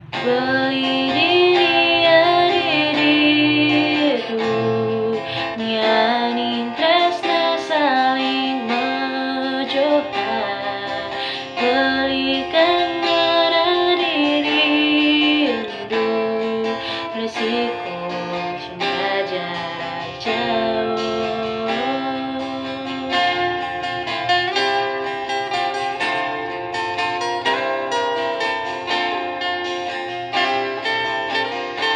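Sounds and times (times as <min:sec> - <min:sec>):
plucked acoustic guitar: 0:00.0 - 0:31.9
woman singing: 0:00.1 - 0:24.3.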